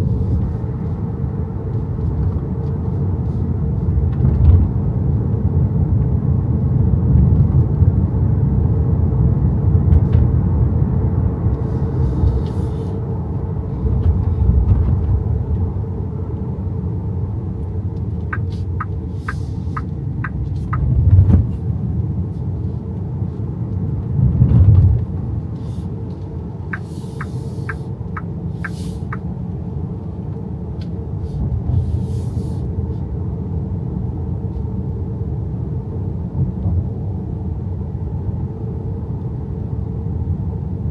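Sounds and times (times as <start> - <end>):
road and tyre rumble: 0.0 - 40.9
short evenly spaced ticks: 18.3 - 20.8, 26.7 - 29.2.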